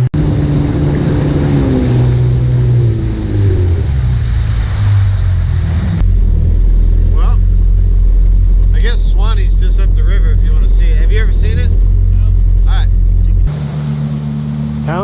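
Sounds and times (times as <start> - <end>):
personal watercraft engine: 0.0 - 15.0
water spray: 1.3 - 6.0.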